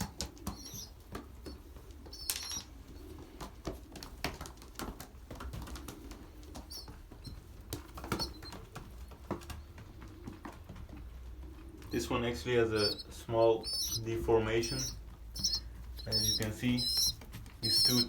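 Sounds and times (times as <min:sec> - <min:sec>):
pigeons squeaking: 0:00.0 - 0:03.9, 0:05.5 - 0:18.0
pigeon wings flapping: 0:00.0 - 0:15.2
scuffling clicks: 0:11.8 - 0:18.0.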